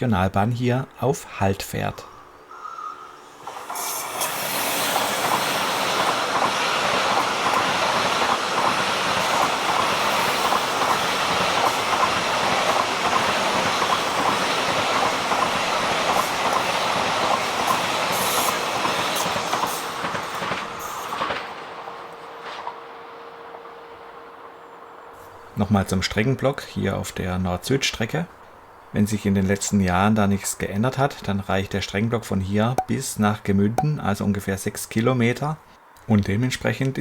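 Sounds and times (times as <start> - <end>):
high-speed train passing: 1.8 - 29.6
wheels clacking over rail joints: 3.4 - 21.7.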